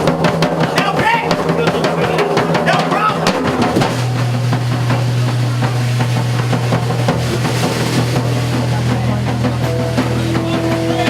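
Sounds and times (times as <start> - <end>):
drum and cymbal hits: 0.0 - 11.0
live band music: 0.0 - 11.0
low bass drone: 3.2 - 11.0.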